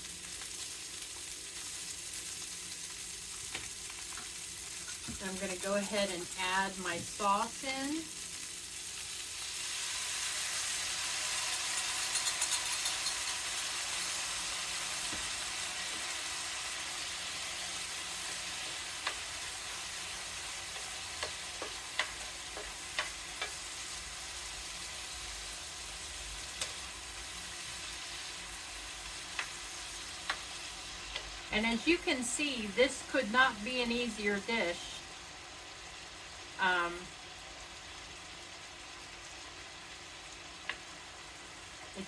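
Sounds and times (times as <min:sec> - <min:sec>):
stir fry sizzling in a skillet: 0:00.0 - 0:42.0
stirring clicks against pan: 0:20.8 - 0:23.6.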